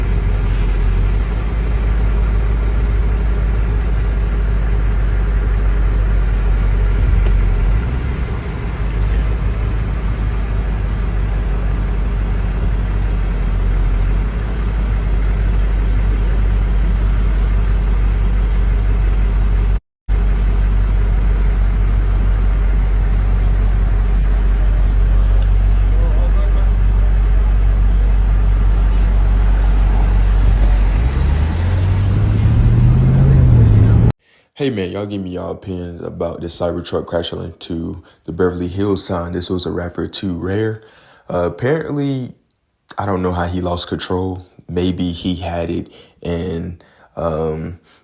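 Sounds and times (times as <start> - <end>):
motor vehicle rumbling: 0.0 - 34.2.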